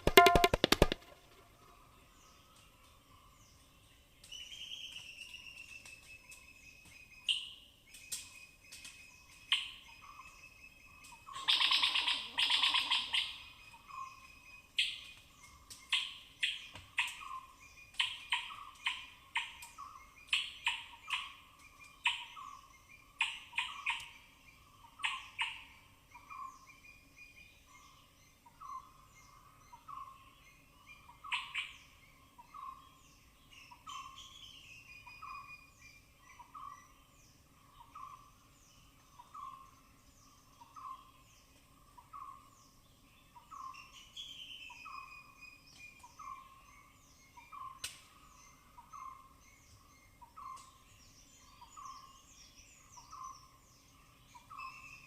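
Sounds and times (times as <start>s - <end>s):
squirrel calling: 11.2s - 14.2s, 30.9s - 32.8s.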